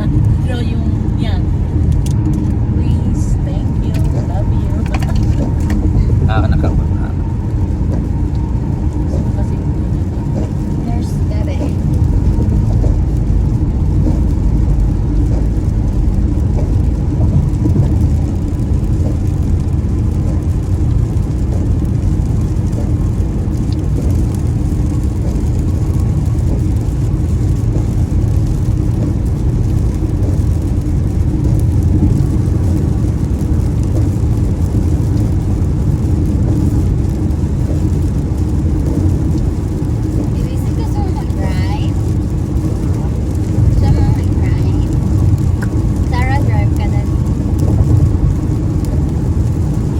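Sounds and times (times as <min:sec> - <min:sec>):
car engine and road noise: 0:00.0 - 0:49.9.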